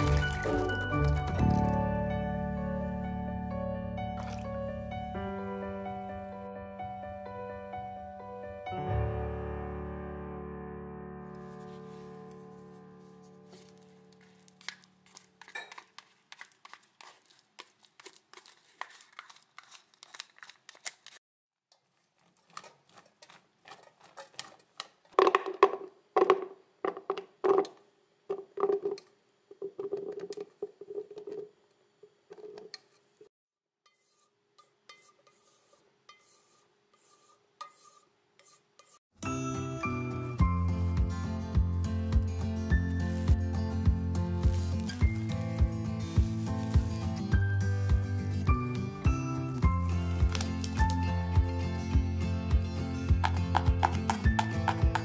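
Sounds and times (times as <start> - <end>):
music: 0.0 - 14.9, 39.2 - 55.0
beans spooned into plastic container: 13.5 - 27.7.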